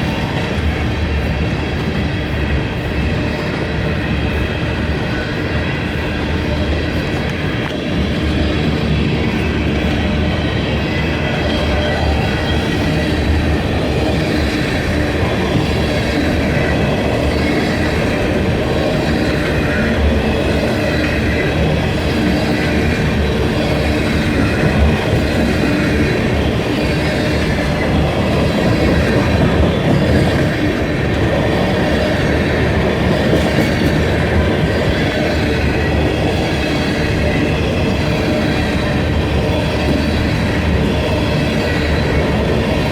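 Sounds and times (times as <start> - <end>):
freight train wheels clattering: 0.0 - 42.9.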